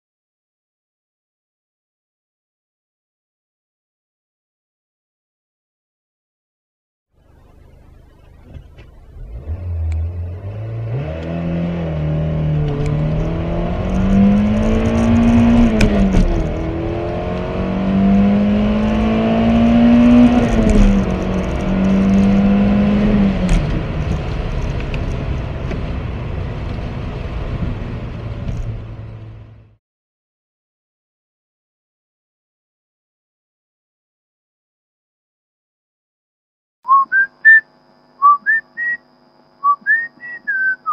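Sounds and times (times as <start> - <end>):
car engine accelerating: 7.2 - 29.8.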